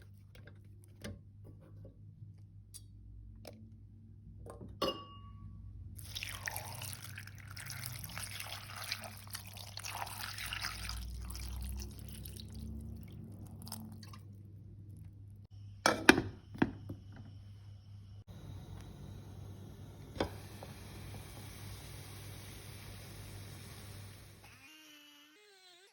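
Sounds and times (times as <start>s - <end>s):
water splashing and trickling: 6.0s - 15.0s.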